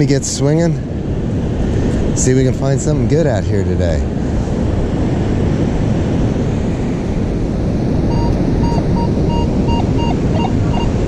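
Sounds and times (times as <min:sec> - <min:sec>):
wind buffeting the microphone: 0:00.0 - 0:11.0
metal detector high beeps: 0:08.1 - 0:11.0.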